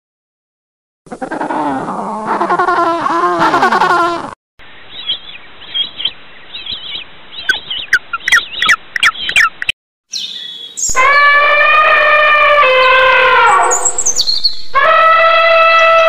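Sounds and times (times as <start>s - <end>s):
lower-pitched animal call: 1.1s - 4.4s, 10.9s - 16.0s
birds chirping: 4.6s - 11.1s, 12.8s - 14.7s.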